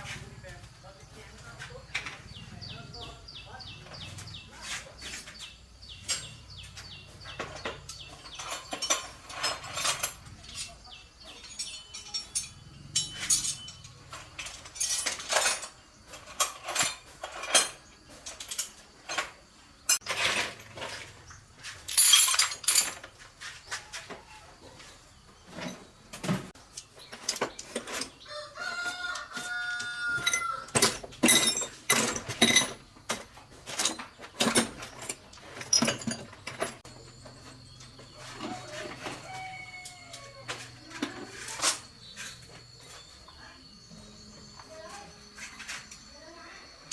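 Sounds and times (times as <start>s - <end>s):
rooster crowing: 28.3s - 30.8s, 38.2s - 40.8s
sharp knocks and clanks: 30.1s - 39.4s.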